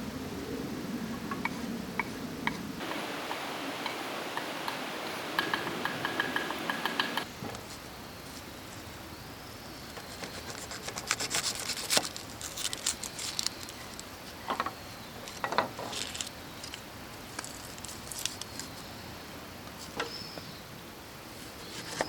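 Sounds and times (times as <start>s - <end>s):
rustling scrapes: 10.0s - 14.0s.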